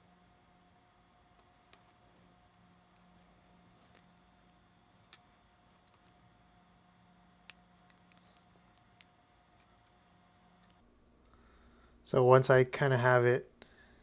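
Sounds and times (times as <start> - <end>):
faint sharp clicks of small parts: 0.6 - 6.2, 7.4 - 11.4.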